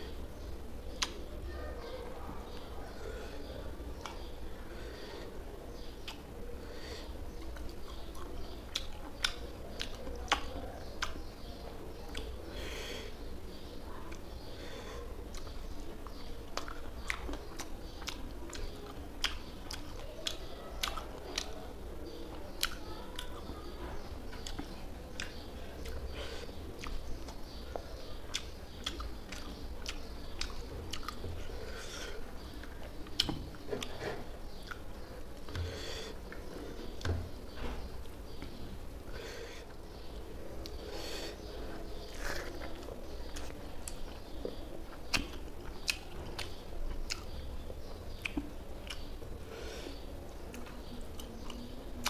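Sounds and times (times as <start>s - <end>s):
wet mouth clicks and smacks: 1.0s - 1.2s, 48.1s - 49.1s
person chewing: 6.8s - 11.2s, 15.2s - 21.6s, 24.3s - 37.1s, 40.6s - 47.4s, 48.1s - 51.6s.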